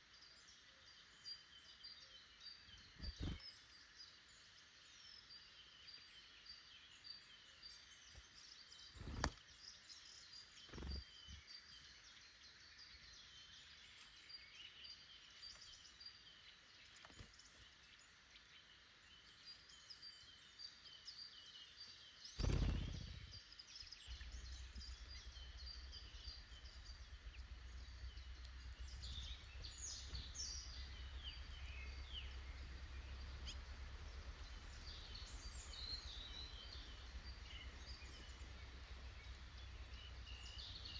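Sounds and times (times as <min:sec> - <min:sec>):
songbirds chirping: 0:00.0 - 0:40.9
low steady rumble: 0:22.4 - 0:40.9.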